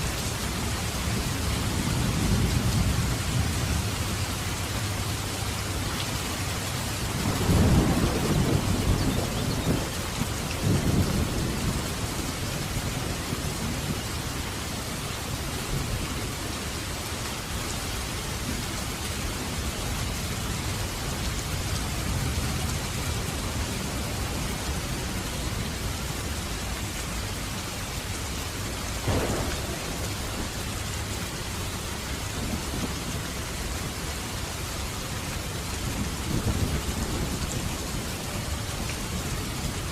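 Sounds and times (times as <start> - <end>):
heavy rain falling: 0.0 - 39.9
thunder rumbling: 7.1 - 14.2, 29.0 - 33.8.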